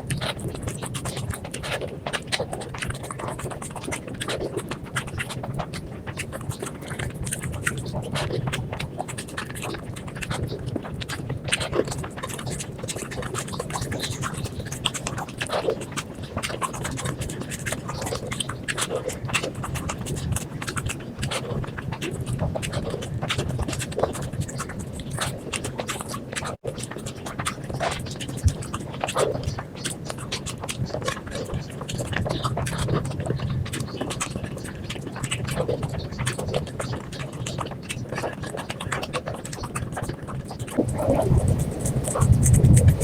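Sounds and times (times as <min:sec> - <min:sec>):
crunchy chewing: 0:00.0 - 0:43.0
wet mouth clicks: 0:00.0 - 0:43.0
low steady hum: 0:40.7 - 0:43.0.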